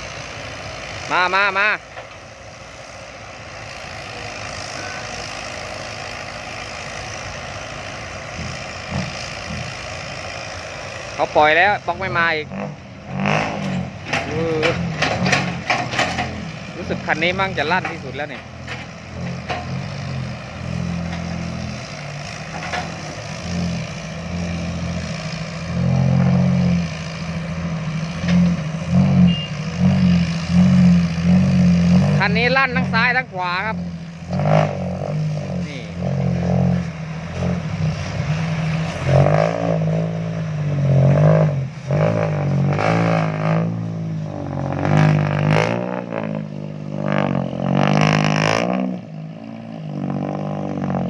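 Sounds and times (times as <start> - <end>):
dump truck engine running: 0.0 - 51.0.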